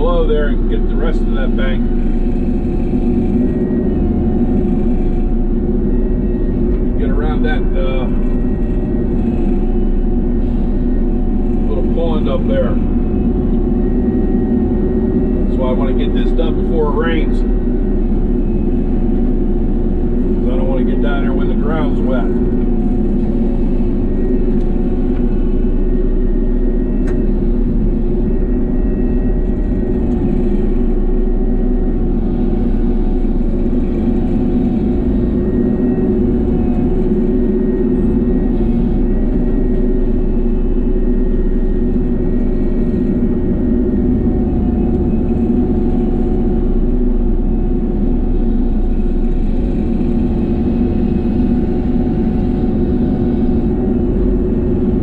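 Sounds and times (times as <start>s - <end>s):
excavator engine and hydraulics: 0.0s - 55.0s.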